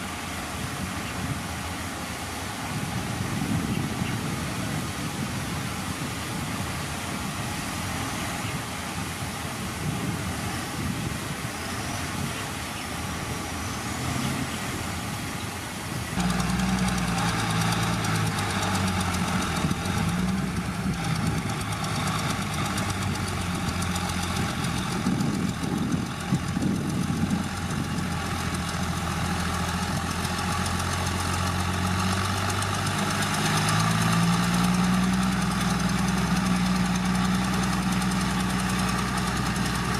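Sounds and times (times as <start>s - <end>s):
heavy diesel engine running: 13.0s - 39.9s.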